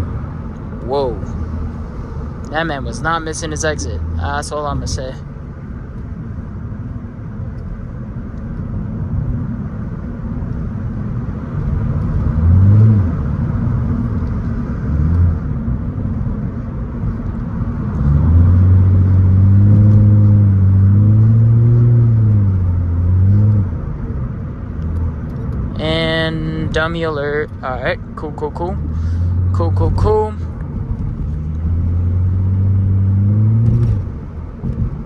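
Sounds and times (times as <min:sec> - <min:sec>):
road rumble: 0:00.0 - 0:35.0
car exhaust revving: 0:11.1 - 0:35.0.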